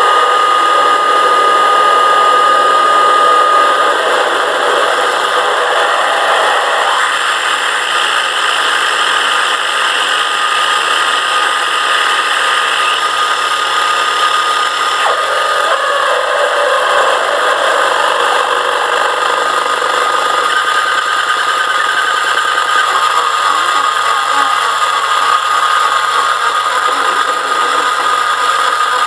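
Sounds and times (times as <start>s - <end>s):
dense electronic noise music: 11.6s - 28.8s.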